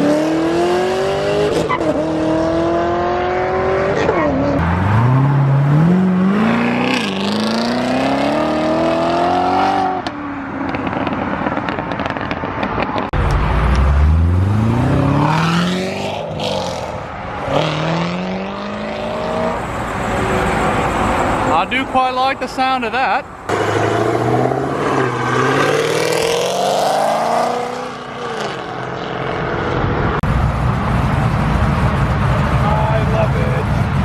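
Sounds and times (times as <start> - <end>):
cars accelerating hard: 0.0 - 10.1, 13.2 - 21.6, 23.5 - 34.0.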